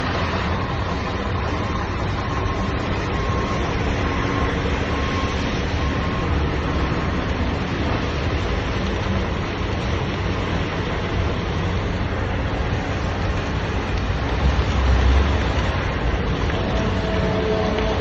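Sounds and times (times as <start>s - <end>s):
highway traffic rumble: 0.0s - 18.0s.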